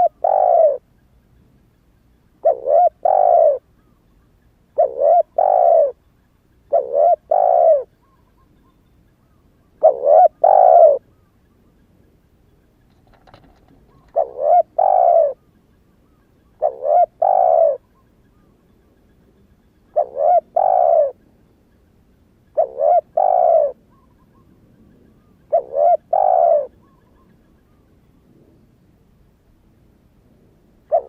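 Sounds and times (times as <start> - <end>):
dove cooing: 0.0 - 0.8, 2.4 - 3.7, 4.8 - 6.0, 6.7 - 8.5, 9.8 - 11.2, 12.9 - 18.6, 19.8 - 21.2, 22.5 - 27.9.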